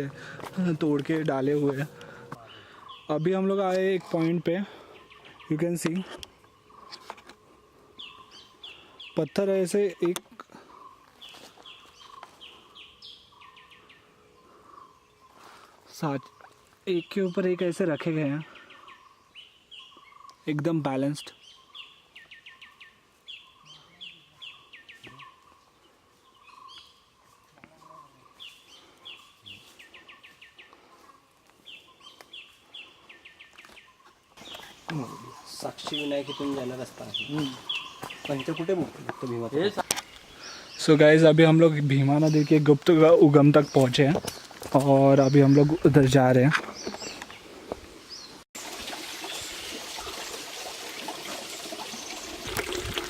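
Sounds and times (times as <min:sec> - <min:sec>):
songbird singing: 0:00.0 - 0:48.5
water trickling and pouring: 0:48.6 - 0:53.0.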